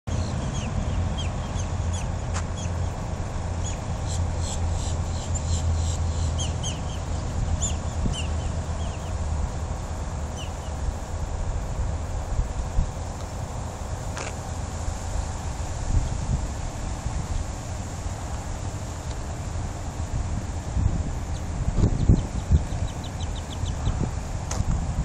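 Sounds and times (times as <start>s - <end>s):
bird chirping: 0.1s - 3.0s, 3.6s - 9.2s, 10.3s - 10.8s, 21.3s - 24.1s
steady low rumble: 0.1s - 25.0s.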